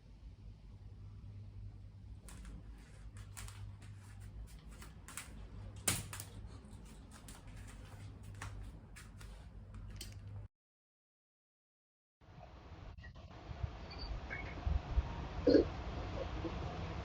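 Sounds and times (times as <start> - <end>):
steady low hum: 0.0 - 10.5
small clicks and taps: 2.3 - 10.4.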